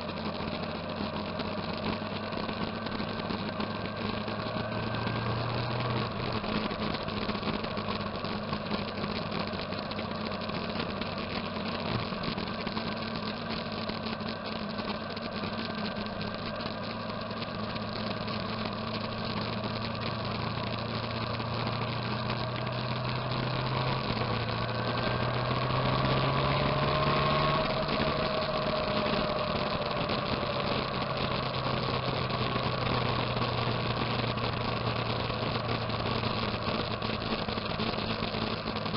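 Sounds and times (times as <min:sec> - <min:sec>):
motorcycle engines running: 0:00.0 - 0:38.9
engine note rising and falling: 0:03.6 - 0:07.2, 0:17.6 - 0:38.9.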